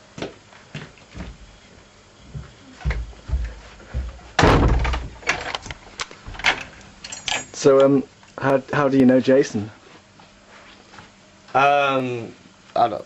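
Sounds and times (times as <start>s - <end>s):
dull thumps: 2.3s - 5.4s
door slamming shut: 4.4s - 5.5s.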